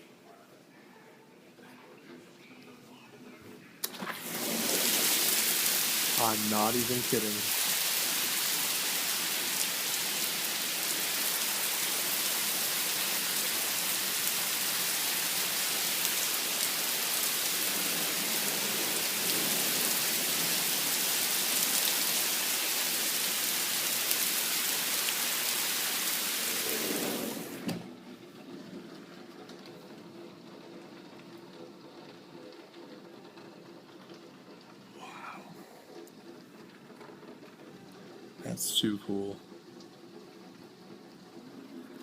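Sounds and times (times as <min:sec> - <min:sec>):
heavy rain pouring: 0:04.0 - 0:27.8, 0:28.4 - 0:42.0.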